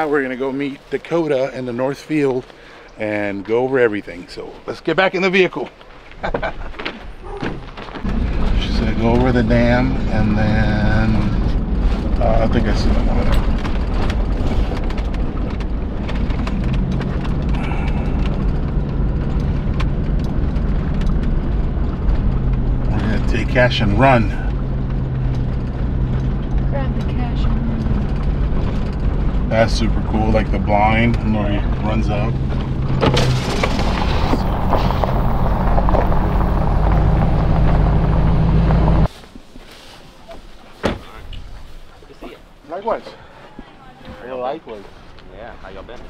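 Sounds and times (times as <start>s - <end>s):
engine hum: 0.0s - 39.2s
vehicle rumble on dirt road: 0.0s - 46.0s
small rattles and knocks: 11.4s - 36.7s.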